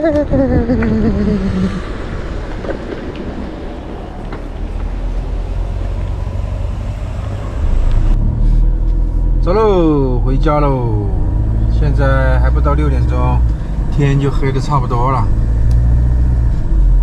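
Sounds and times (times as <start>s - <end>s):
falling whining voice: 0.0s - 2.0s
vehicle low rumble: 0.0s - 17.0s.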